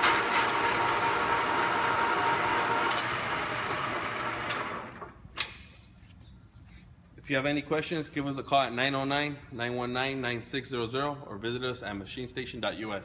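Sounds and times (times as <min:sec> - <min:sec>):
lathe gear whine: 0:00.0 - 0:05.1.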